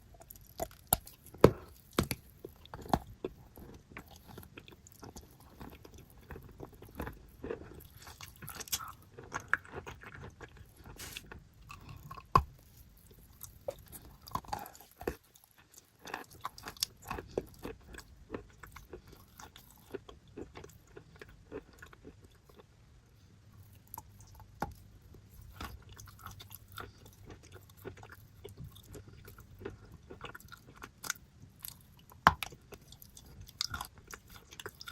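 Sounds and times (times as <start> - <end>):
person biting and chewing chalk: 0.2 - 22.3.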